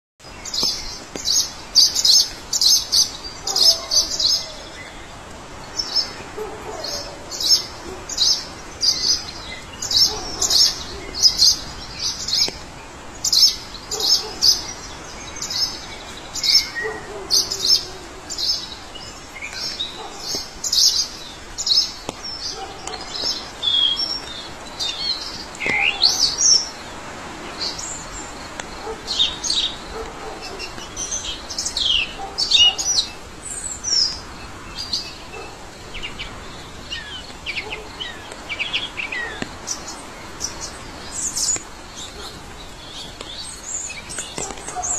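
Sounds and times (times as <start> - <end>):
birds chirping: 0.2 - 44.9
low falling bird call: 0.4 - 26.8.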